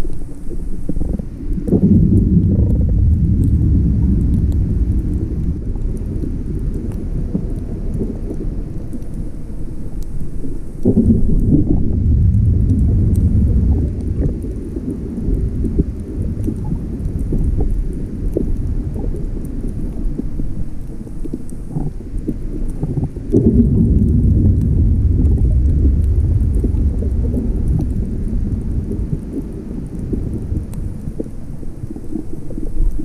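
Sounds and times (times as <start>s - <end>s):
faint crackles: 0.0s - 33.0s
muffled underwater rumble: 0.0s - 33.0s.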